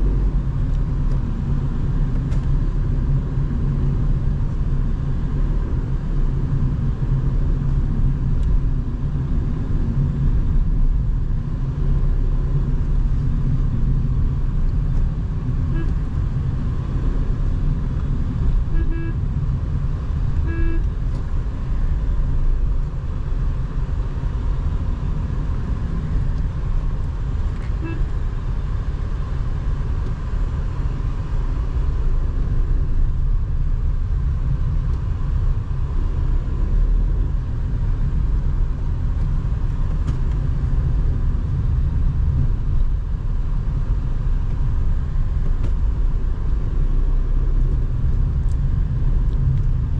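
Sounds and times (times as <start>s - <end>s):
car engine and road rumble: 0.0s - 49.9s
car horn beeps: 15.7s - 16.1s, 18.6s - 19.3s, 20.4s - 21.0s, 27.6s - 28.2s.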